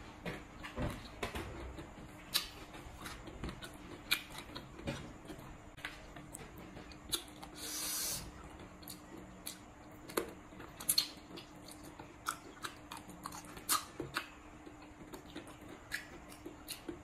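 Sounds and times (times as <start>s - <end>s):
person chewing with wet smacks: 0.5s - 17.0s
short hiss: 7.6s - 8.2s.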